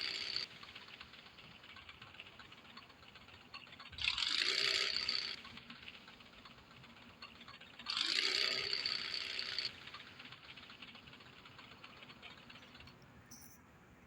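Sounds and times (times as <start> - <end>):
faint ticking rattle: 0.0 - 13.7.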